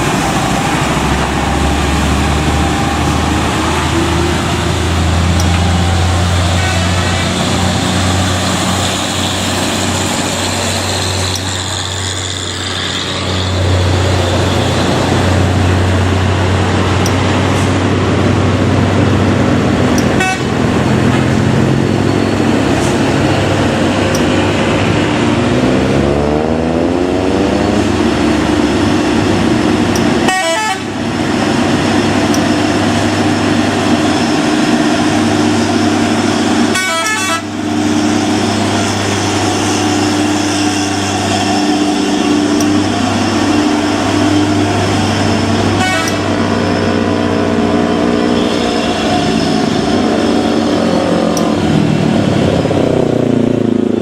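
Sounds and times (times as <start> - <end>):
heavy truck engines running: 0.0 - 54.0
vehicle horn: 6.4 - 7.8, 20.0 - 20.7, 30.2 - 31.0, 36.7 - 38.1, 45.5 - 46.5.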